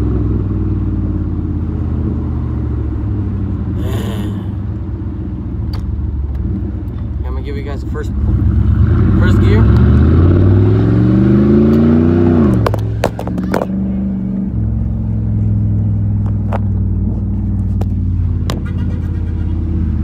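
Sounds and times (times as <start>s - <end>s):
truck exhaust accelerating: 0.0s - 20.0s
exhaust pops: 12.4s - 13.8s, 16.2s - 19.8s.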